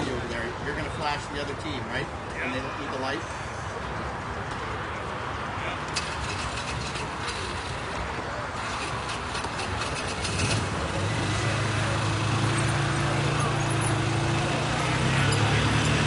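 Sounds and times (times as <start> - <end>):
outdoor background noise: 0.0 - 16.0
engine humming: 5.9 - 16.0.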